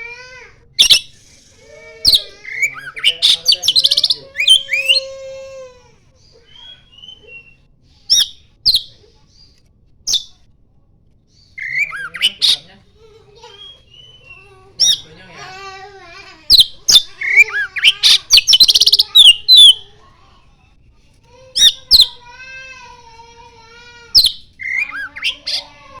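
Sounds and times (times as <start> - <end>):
bird singing whistled notes: 6.5 - 8.9, 11.5 - 12.6, 13.6 - 15.0.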